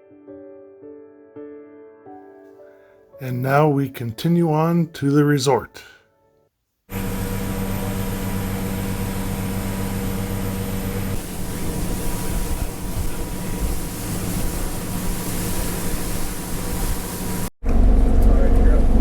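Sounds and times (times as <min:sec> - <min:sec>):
motorboat engine hum: 0:06.9 - 0:19.0
wind and water noise: 0:07.0 - 0:17.5.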